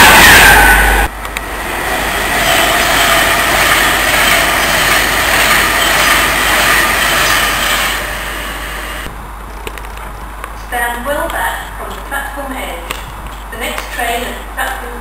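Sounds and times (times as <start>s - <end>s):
train wheels rushing on rail: 0.0s - 10.3s
train with high whine: 0.0s - 11.1s.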